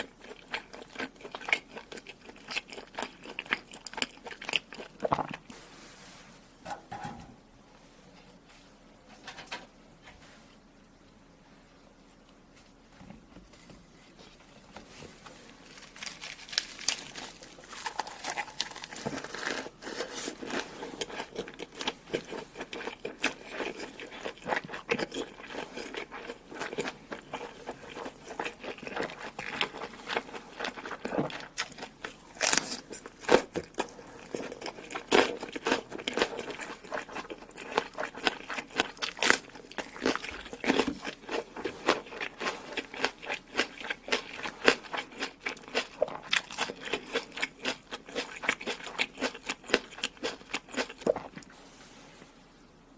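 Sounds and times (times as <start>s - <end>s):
person chewing crunchy food: 0.0s - 5.6s, 15.7s - 51.5s.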